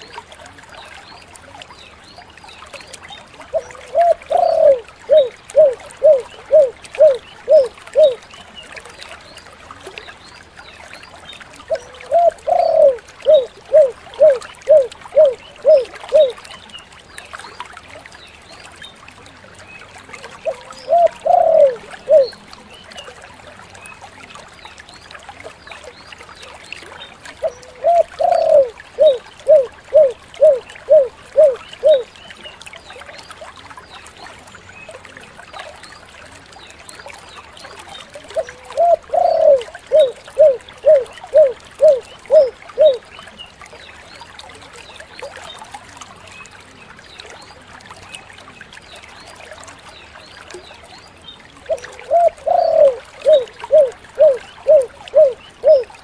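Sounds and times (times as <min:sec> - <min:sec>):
dove cooing: 0:03.5 - 0:08.2, 0:11.7 - 0:16.4, 0:20.5 - 0:22.4, 0:27.4 - 0:32.1, 0:38.4 - 0:43.0, 0:51.7 - 0:55.9.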